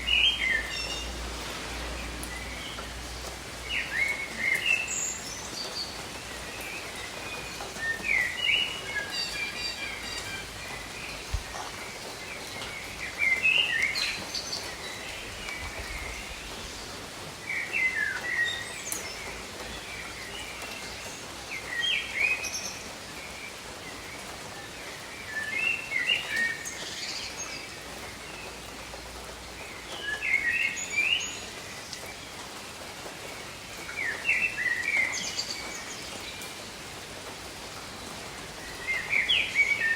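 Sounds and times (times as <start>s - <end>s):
steady rain falling: 0.0s - 39.9s
bird singing short song: 6.6s - 11.7s.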